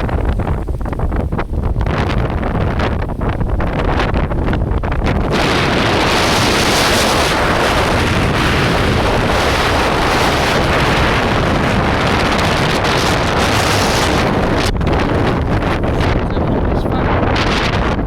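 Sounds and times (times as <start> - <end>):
strong wind rushing: 0.0 - 18.0
wind buffeting microphone: 0.0 - 18.0.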